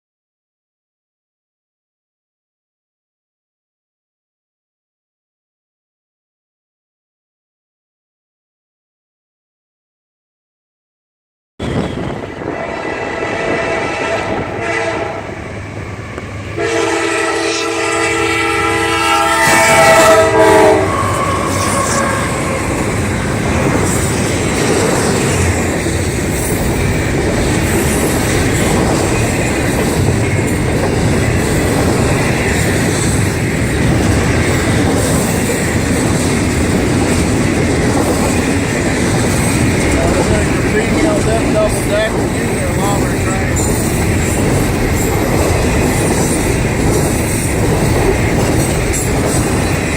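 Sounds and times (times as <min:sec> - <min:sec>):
locomotive air horn: 0:11.6 - 0:15.4, 0:16.6 - 0:22.7
train rolling past: 0:11.6 - 0:49.9.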